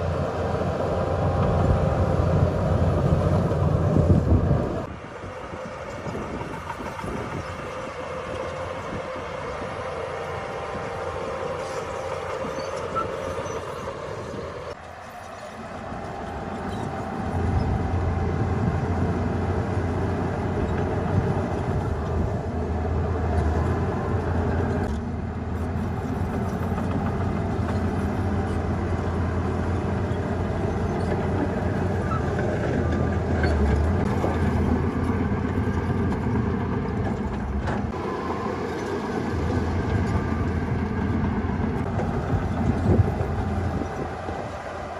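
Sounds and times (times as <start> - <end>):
heavy diesel machinery engine drone: 0.0 - 44.9.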